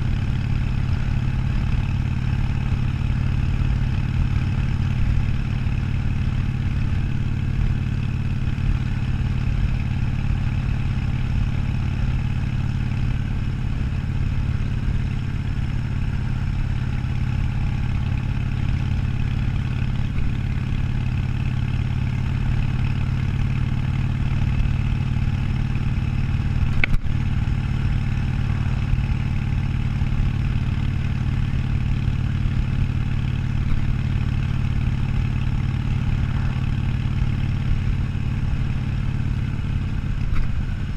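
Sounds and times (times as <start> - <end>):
motorcycle engine running: 0.0 - 40.9
sharp click: 26.7 - 27.1.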